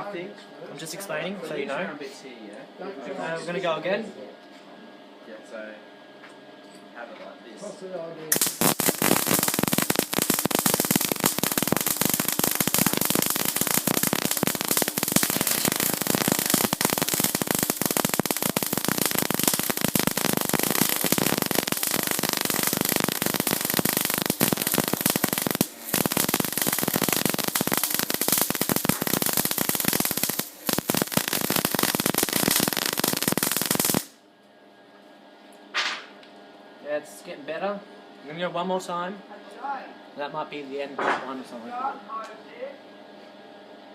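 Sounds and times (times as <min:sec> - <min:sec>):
welding arc crackling and hissing: 0:08.3 - 0:34.2.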